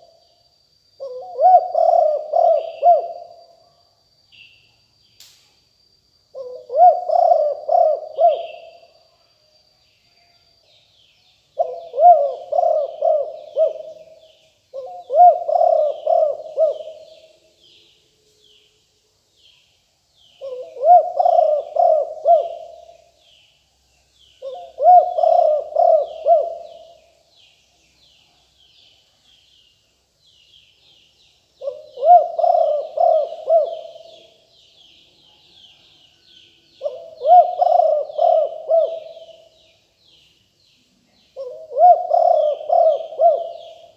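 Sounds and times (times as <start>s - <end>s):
small birds twittering: 0.0s - 9.1s, 9.7s - 43.9s
dove cooing: 1.0s - 3.4s, 6.4s - 8.9s, 11.6s - 17.3s, 20.4s - 23.1s, 24.4s - 27.0s, 31.6s - 34.4s, 36.8s - 39.6s, 41.3s - 43.9s.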